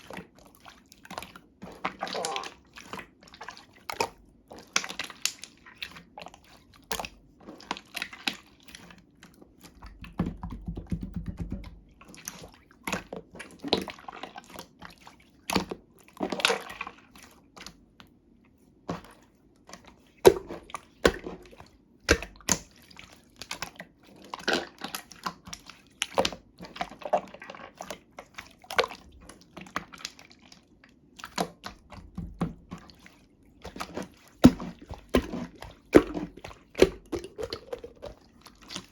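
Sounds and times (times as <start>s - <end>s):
hands squishing slime: 18.8s - 30.5s, 31.2s - 38.9s.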